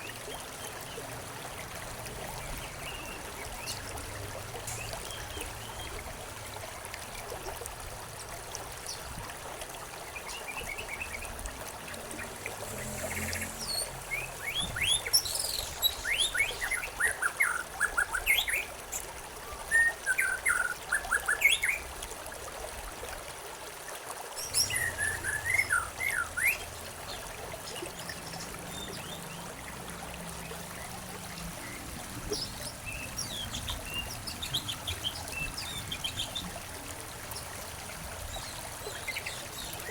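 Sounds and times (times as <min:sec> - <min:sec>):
stream trickling: 0:00.0 - 0:39.9
songbirds chirping: 0:10.0 - 0:21.8, 0:24.4 - 0:39.9.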